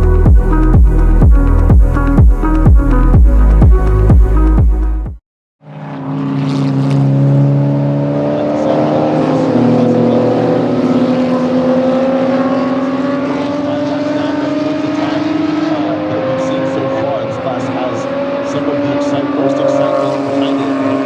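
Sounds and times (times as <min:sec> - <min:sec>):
race car engines running hard: 0:05.7 - 0:21.0.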